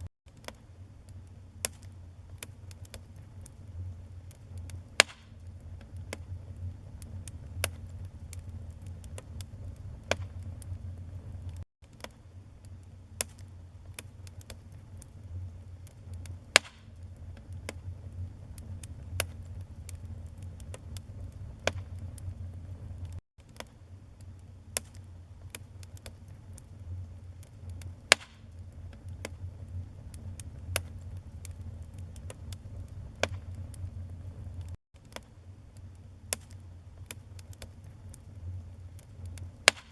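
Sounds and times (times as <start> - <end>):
low rumble of flames: 0.0 - 39.9
wood fire crackling and popping: 0.3 - 39.9
loud wood snaps: 4.6 - 6.3, 7.0 - 10.7, 16.1 - 17.9, 21.6 - 22.3, 27.7 - 29.5, 33.2 - 33.8, 39.3 - 39.9.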